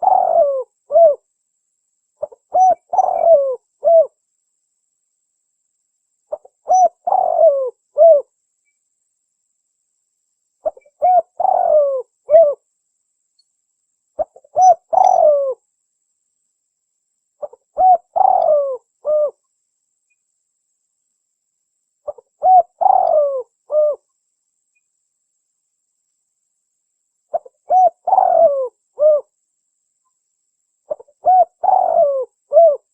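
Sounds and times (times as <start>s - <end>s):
dove cooing: 0.0s - 1.2s, 2.2s - 4.2s, 6.3s - 8.3s, 10.6s - 12.6s, 14.2s - 15.6s, 17.4s - 19.4s, 22.1s - 24.0s, 27.3s - 29.3s, 30.9s - 32.9s.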